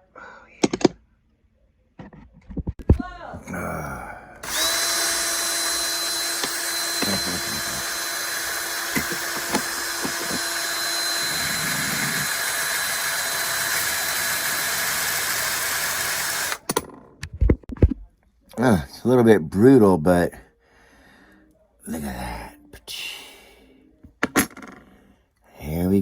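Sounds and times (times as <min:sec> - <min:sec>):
handheld power tool motor: 0:04.4 - 0:16.8.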